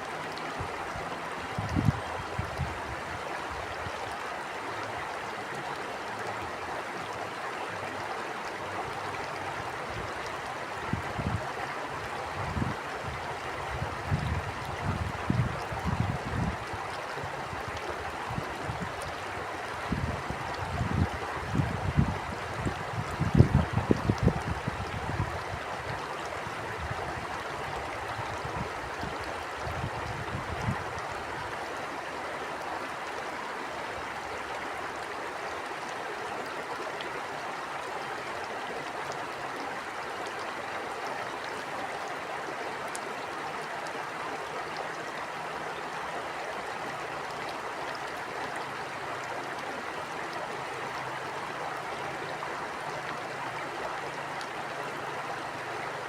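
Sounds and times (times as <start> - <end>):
stream water flowing: 0.0 - 56.0
wind buffeting microphone: 1.5 - 3.1, 10.9 - 11.4, 12.4 - 16.8, 19.8 - 31.0.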